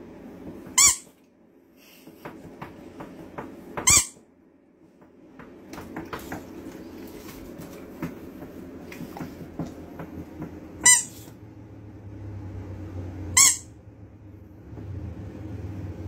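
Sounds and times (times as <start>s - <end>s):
dog squealing: 10.8s - 11.3s, 13.4s - 13.7s.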